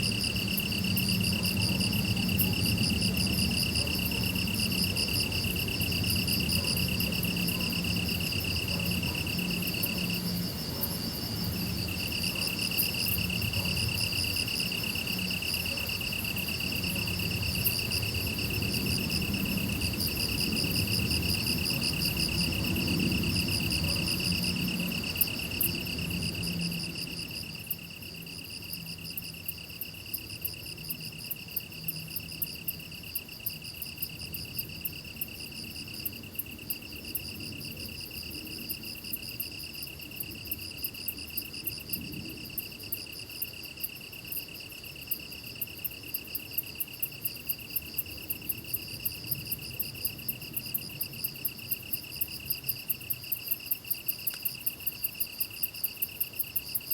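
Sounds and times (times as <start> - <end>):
crickets trilling: 0.0 - 56.9.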